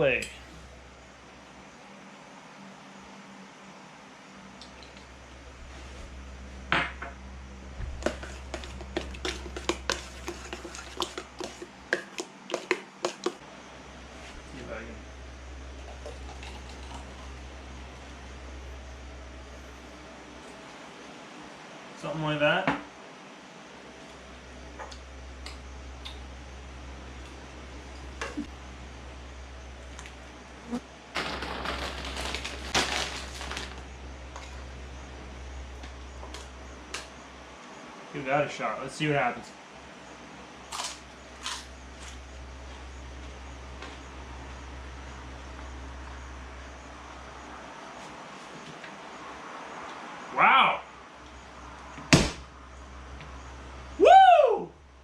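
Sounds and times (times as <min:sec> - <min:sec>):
utensil knocking a dish: 0:08.0 - 0:13.4.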